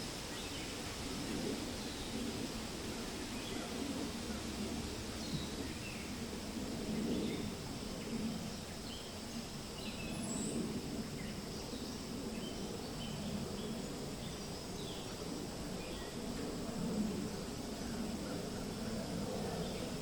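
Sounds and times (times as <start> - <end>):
wind rustling leaves: 0.0 - 20.0.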